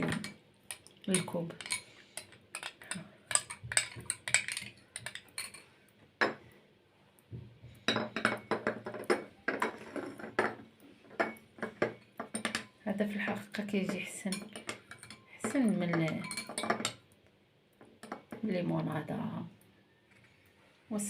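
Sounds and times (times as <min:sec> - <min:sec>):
spoon clinking against glass: 0:14.3 - 0:17.0.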